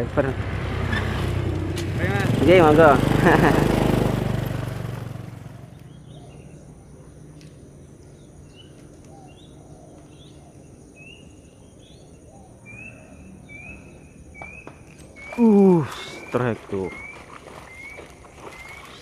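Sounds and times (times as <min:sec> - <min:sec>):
motorcycle engine: 0:00.0 - 0:06.6
birds chirping: 0:00.0 - 0:19.0
repeated rising bird calls: 0:05.4 - 0:19.0.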